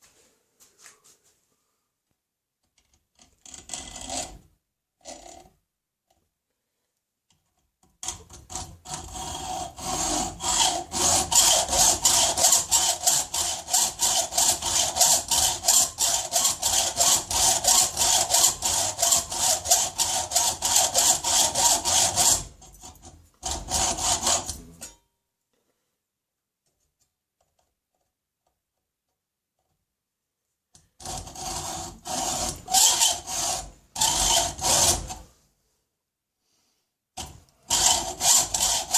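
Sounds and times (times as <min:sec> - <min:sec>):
hand saw cutting metal: 0:08.0 - 0:25.0, 0:31.0 - 0:35.3, 0:37.2 - 0:38.9.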